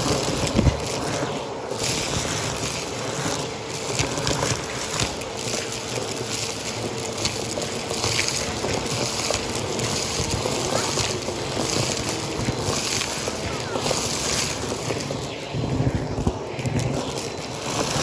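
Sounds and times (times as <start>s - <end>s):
debris clicking in vacuum: 0.0s - 18.0s
vacuum cleaner running: 0.0s - 18.0s.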